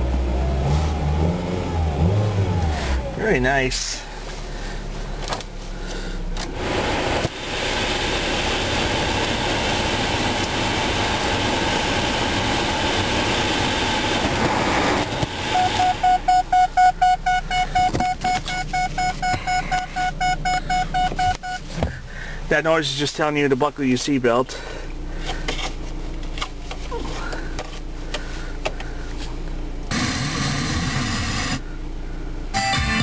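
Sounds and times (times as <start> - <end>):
car engine running: 0.0 - 33.0
seatbelt reminder beeping: 15.5 - 21.8.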